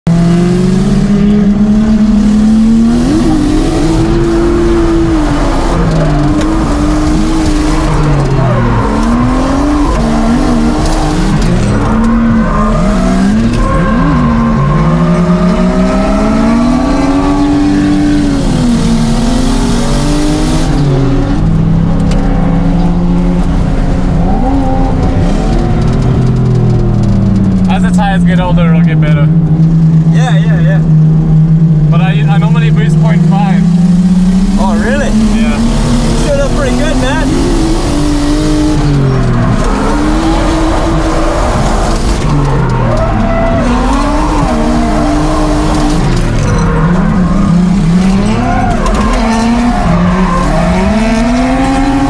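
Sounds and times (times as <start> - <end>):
car engine revving hard: 0.1 - 52.0
tyres squealing: 38.7 - 52.0.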